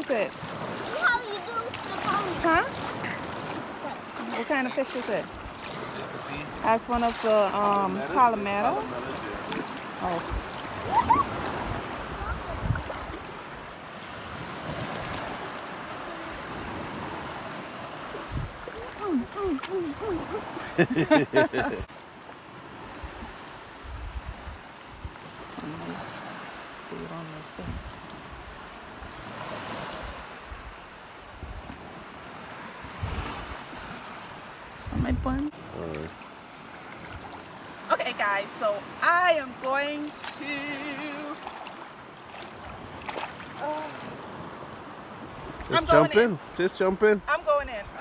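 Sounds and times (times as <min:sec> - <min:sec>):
sea surf washing: 0:00.0 - 0:48.0
wind buffeting microphone: 0:08.7 - 0:15.5, 0:16.4 - 0:21.9, 0:23.0 - 0:25.2, 0:32.8 - 0:33.9, 0:34.7 - 0:35.5.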